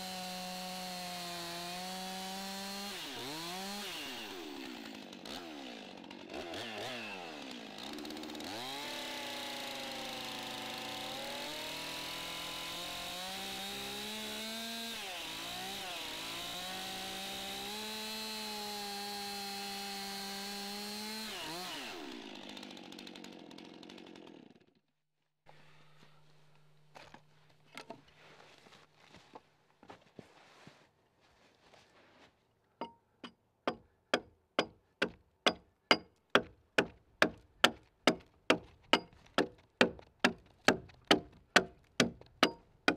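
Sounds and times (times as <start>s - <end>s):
chainsaw cutting log: 0.0s - 24.9s, 33.7s - 42.9s.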